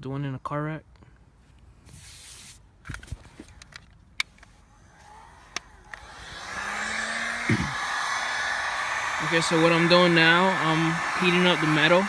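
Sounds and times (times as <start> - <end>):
heat gun blowing hiss: 4.7 - 12.0.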